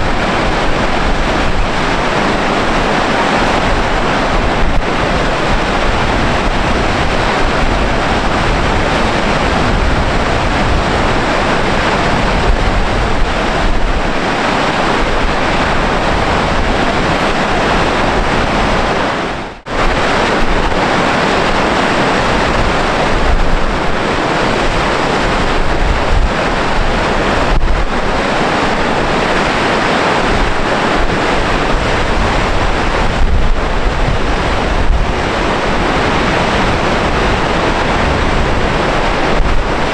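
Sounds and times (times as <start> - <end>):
waterfall roaring: 0.0 - 39.9
wind buffeting microphone: 0.0 - 39.9.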